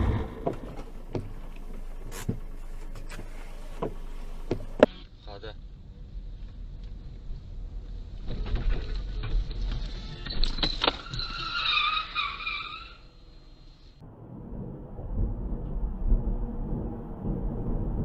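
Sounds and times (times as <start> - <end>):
car road noise: 0.0 - 18.0
tyres squealing in a skid: 8.3 - 13.2.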